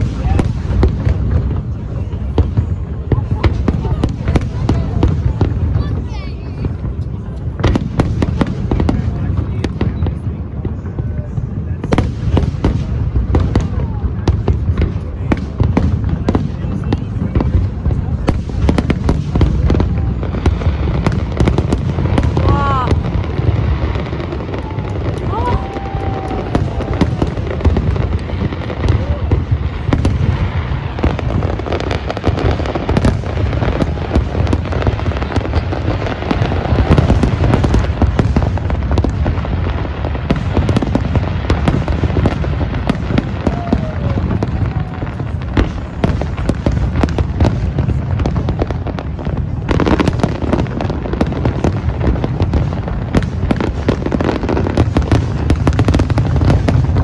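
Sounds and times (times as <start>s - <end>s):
crowd voices: 0.0s - 57.0s
fireworks booming and crackling: 0.0s - 57.0s.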